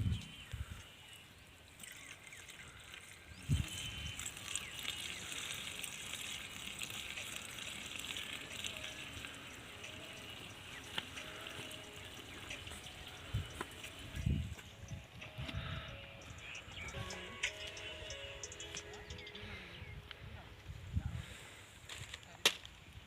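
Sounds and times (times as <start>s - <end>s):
liquid trickling into tank: 1.8s - 14.5s.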